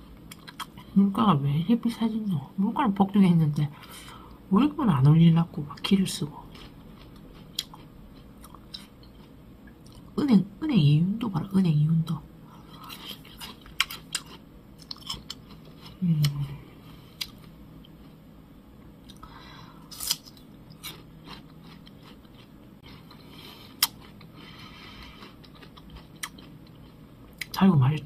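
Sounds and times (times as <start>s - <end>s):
crunchy pear chewing: 5.8s - 10.2s, 12.6s - 18.2s, 19.0s - 27.6s.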